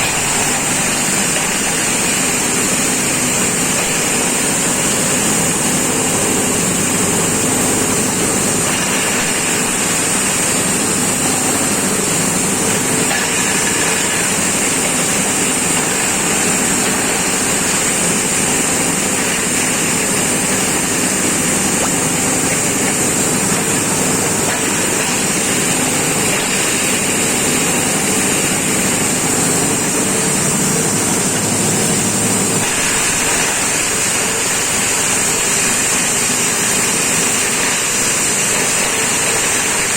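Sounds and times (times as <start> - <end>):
machine grinding corn cobs: 0.0 - 39.9
strong hiss: 0.0 - 39.9.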